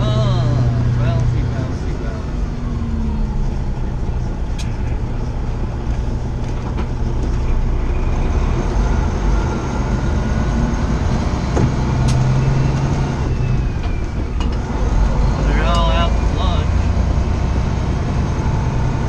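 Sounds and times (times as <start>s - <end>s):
road noise: 0.0s - 19.0s
truck engine drone: 0.0s - 19.0s.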